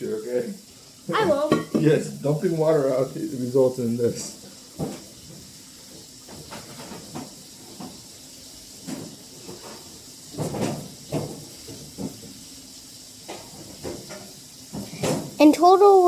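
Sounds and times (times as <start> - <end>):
faint hiss: 0.0 - 10.6.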